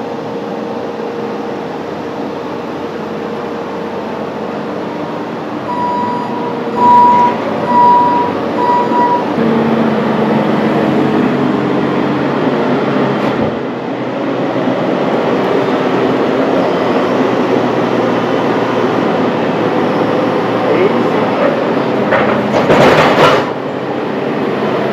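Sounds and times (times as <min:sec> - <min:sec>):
sawmill machinery running: 0:00.0 - 0:24.9
short electronic beeps: 0:05.7 - 0:09.4.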